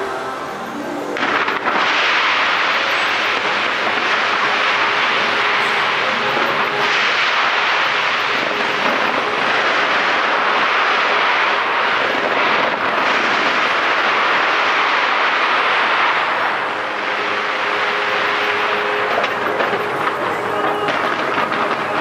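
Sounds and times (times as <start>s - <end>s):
distant fireworks bursting: 0.0s - 22.0s.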